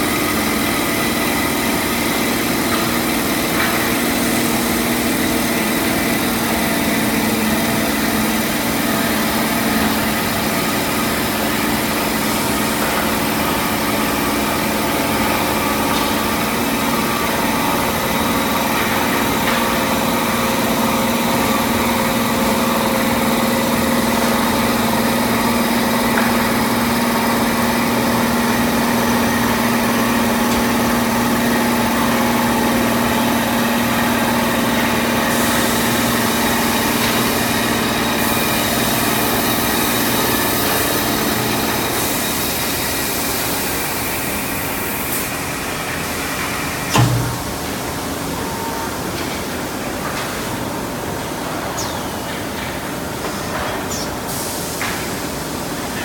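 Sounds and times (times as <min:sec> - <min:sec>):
lathe machine hum: 0:00.0 - 0:49.1.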